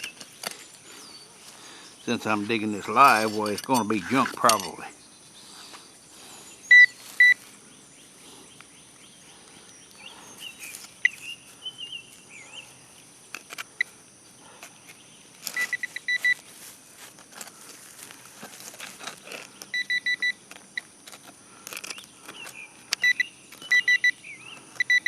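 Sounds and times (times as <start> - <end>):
bird chirping: 0.0 - 13.1, 21.9 - 25.0
metal detector beeping: 2.1 - 4.8, 6.7 - 7.4, 10.5 - 11.5, 15.4 - 16.5, 19.0 - 21.0, 21.7 - 25.0.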